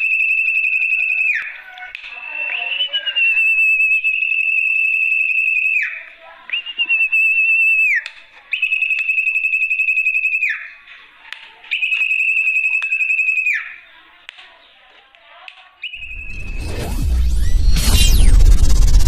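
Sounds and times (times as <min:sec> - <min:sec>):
high whistled bird call: 0:00.0 - 0:10.8, 0:15.8 - 0:17.8.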